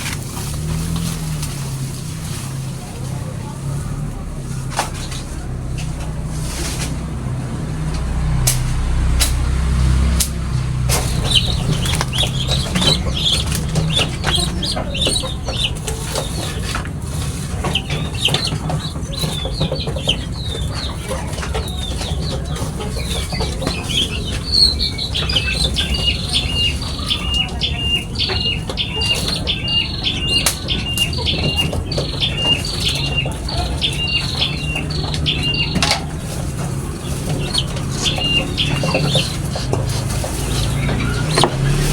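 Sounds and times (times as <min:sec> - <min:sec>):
flock of birds twittering: 0:00.0 - 0:41.9
low rumble: 0:03.5 - 0:15.7
scattered clicks: 0:07.8 - 0:16.9.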